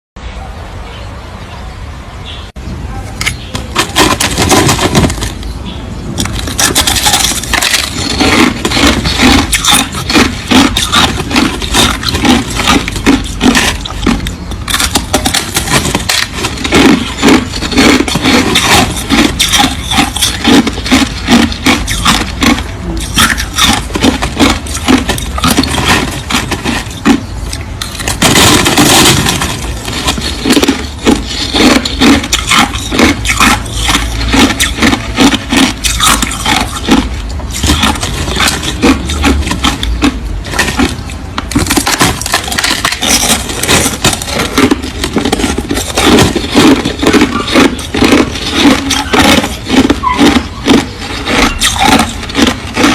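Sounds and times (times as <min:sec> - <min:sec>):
ice crunching between teeth: 0:03.2 - 0:05.5, 0:06.2 - 0:52.9.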